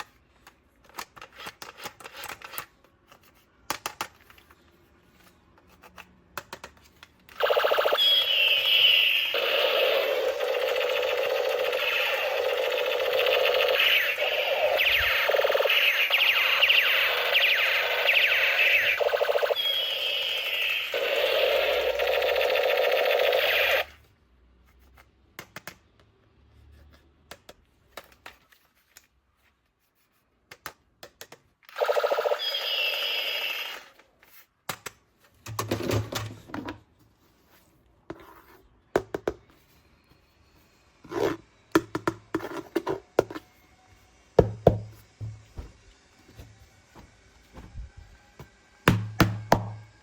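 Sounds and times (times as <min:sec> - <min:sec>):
plastic toy parts clicking: 0:00.0 - 0:04.5
electronic toy sound effect: 0:07.4 - 0:23.9, 0:31.8 - 0:34.0.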